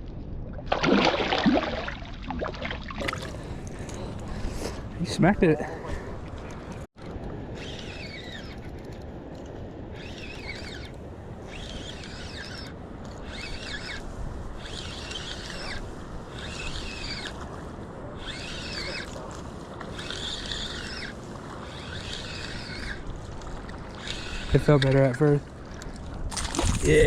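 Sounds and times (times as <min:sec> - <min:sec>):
fishing reel whirring: 0:07.6 - 0:09.0, 0:10.0 - 0:17.6, 0:18.2 - 0:25.0
wind noise on microphone: 0:26.0 - 0:27.0.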